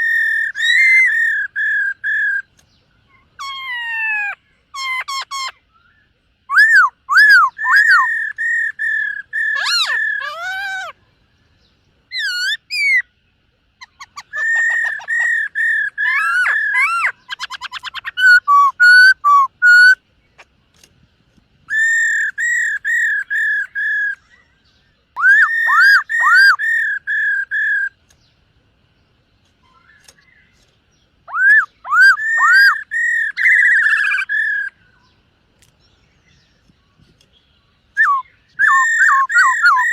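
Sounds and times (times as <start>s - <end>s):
bird singing whistled phrases: 0.0s - 2.5s, 3.4s - 11.0s, 12.1s - 13.1s, 13.8s - 20.0s, 21.7s - 28.0s, 31.2s - 35.2s, 37.9s - 39.9s
fast bird trill: 0.0s - 2.5s, 3.1s - 11.0s, 12.1s - 13.2s, 13.8s - 20.6s, 21.7s - 24.4s, 25.1s - 28.0s, 31.2s - 34.9s, 37.9s - 39.9s.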